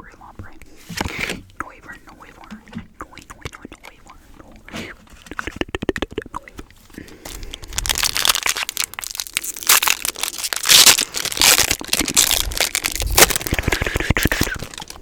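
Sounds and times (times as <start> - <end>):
wrapper crumpling: 7.0 - 15.0.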